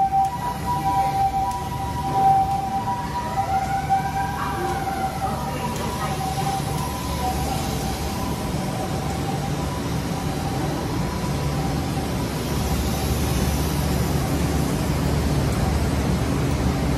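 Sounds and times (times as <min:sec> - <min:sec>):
electric train rumble and hiss: 0:00.0 - 0:16.9.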